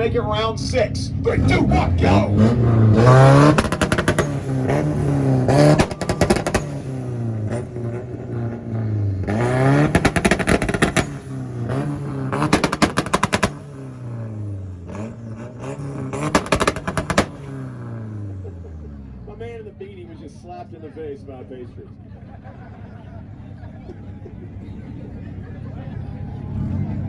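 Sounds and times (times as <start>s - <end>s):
engine revving against limiter: 1.1s - 19.6s, 25.7s - 27.0s
exhaust pops and bangs: 1.5s - 14.4s, 15.1s - 18.1s.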